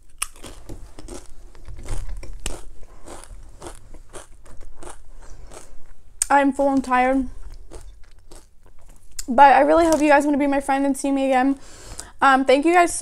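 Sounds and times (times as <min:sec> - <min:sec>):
chip crunching being chewed: 0:00.0 - 0:06.0, 0:07.4 - 0:10.1.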